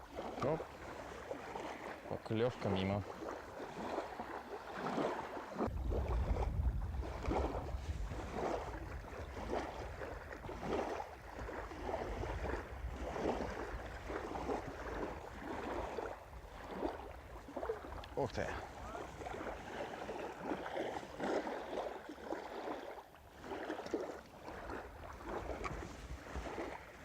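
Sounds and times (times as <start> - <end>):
small waves lapping: 0.0 - 27.0
wind on microphone: 5.5 - 22.7, 24.4 - 27.0
low rumble: 5.7 - 8.3.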